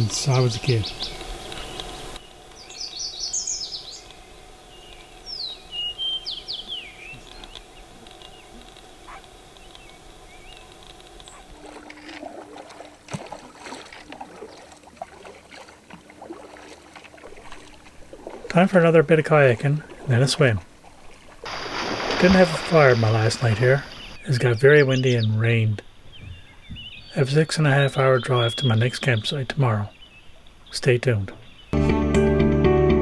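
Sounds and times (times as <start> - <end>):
kayak paddle splashing water: 0.0 - 24.3
birds chirping: 0.0 - 31.8.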